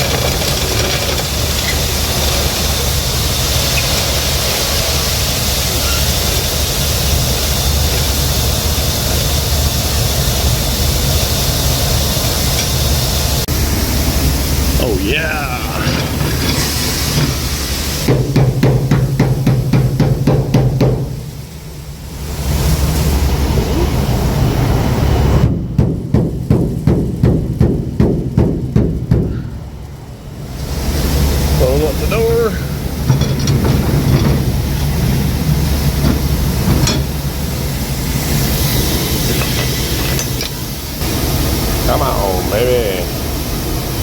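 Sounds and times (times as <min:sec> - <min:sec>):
grain hopper unloading: 0:00.0 - 0:44.0
truck engine humming: 0:00.0 - 0:44.0
rapid sharp knocks: 0:18.0 - 0:21.2, 0:25.8 - 0:29.4.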